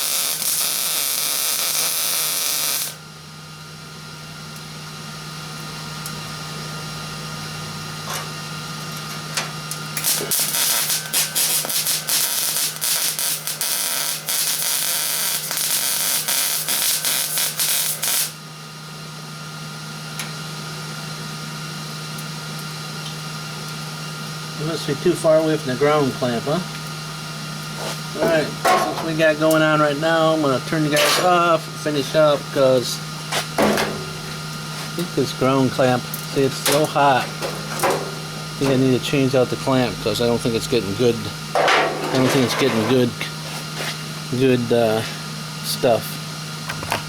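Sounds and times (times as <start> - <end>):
sputtering welding arc crackle: 0.0 - 3.0, 9.7 - 18.4, 27.5 - 43.7
welder low hum: 0.0 - 3.0, 9.4 - 18.4, 24.5 - 47.0
welding arc hiss: 0.0 - 3.0, 9.8 - 18.4, 27.6 - 47.0.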